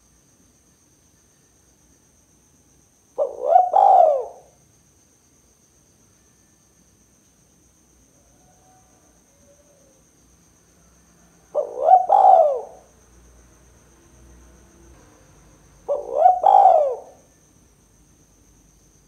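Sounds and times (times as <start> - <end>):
dove cooing: 3.2 - 4.6, 11.5 - 12.9, 15.8 - 17.3.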